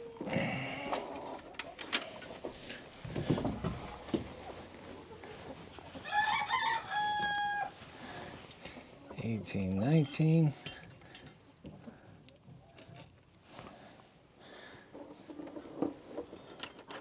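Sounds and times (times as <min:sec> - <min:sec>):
chickens calling: 0:00.0 - 0:12.8
rooster crowing: 0:06.0 - 0:08.2.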